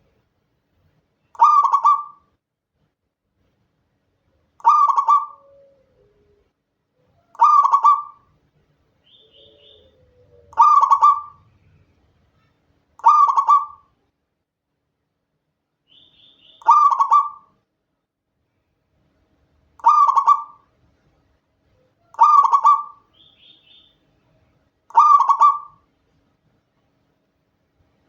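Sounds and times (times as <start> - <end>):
dove cooing: 1.4 - 2.2, 4.6 - 6.4, 7.1 - 8.3, 9.1 - 11.6, 13.0 - 13.9, 16.6 - 17.5, 19.8 - 20.6, 22.1 - 23.0, 24.9 - 25.8
faint high chirps: 9.0 - 13.8, 15.9 - 17.5.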